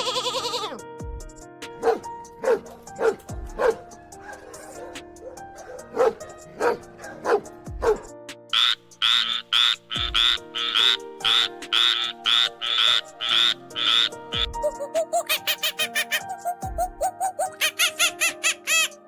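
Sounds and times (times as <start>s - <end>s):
background music: 0.0s - 19.0s
dog barking: 1.8s - 8.1s
frog croaking: 8.5s - 14.6s.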